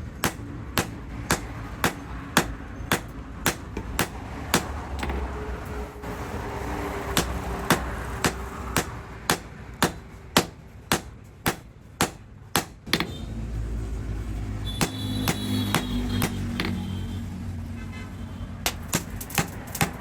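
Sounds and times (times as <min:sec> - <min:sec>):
hammer striking steel on anvil: 0:00.2 - 0:05.5, 0:07.1 - 0:13.2, 0:14.7 - 0:16.9.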